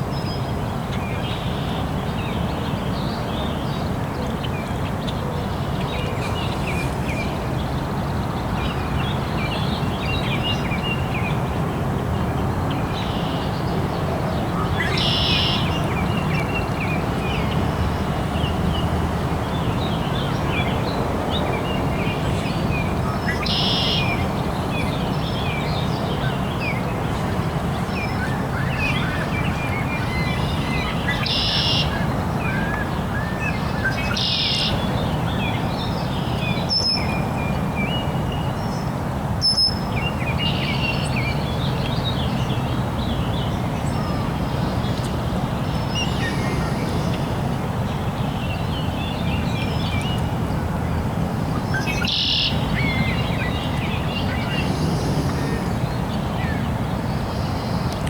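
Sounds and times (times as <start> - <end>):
small birds chirping: 40.1 - 50.3, 51.5 - 58.0
harsh buzzy bird call: 53.9 - 56.2.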